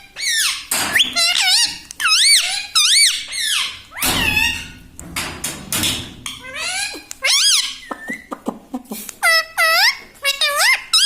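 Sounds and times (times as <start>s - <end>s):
parrot squawking and chirping: 0.0s - 4.8s, 6.2s - 8.4s, 9.2s - 11.0s.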